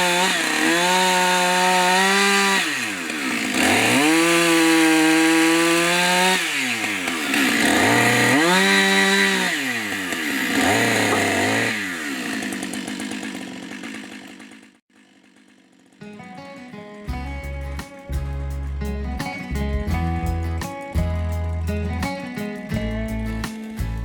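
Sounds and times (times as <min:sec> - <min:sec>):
chainsaw at full throttle: 0:00.0 - 0:16.2.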